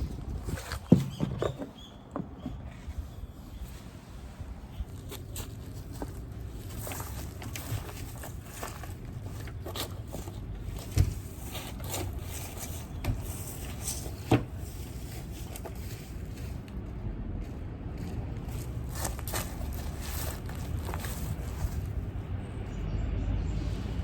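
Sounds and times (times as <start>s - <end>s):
firewood knocks and scrapes: 0.0s - 3.1s, 5.0s - 16.7s
low wind rumble: 0.0s - 24.0s.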